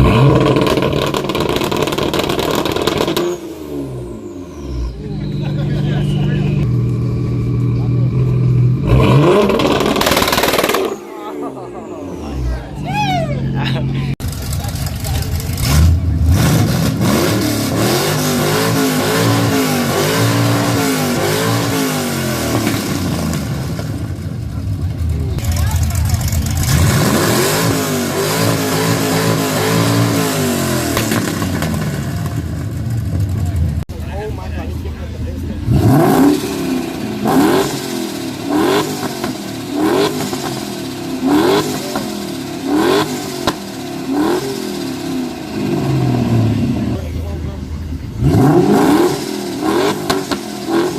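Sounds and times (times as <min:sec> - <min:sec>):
sharp exhaust crack: 0:00.0 - 0:03.6, 0:08.8 - 0:11.2
car engine revving: 0:00.0 - 0:50.9.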